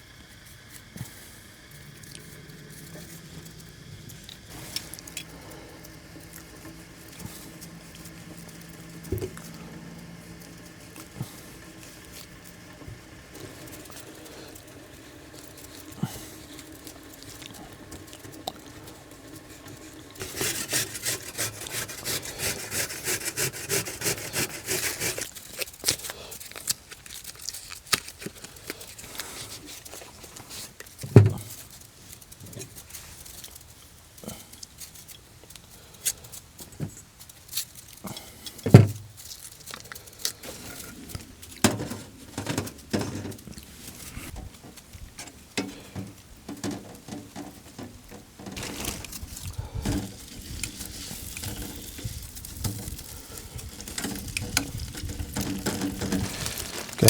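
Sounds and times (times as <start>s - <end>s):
rapid scraping: 1.0s - 25.3s, 48.6s - 57.0s.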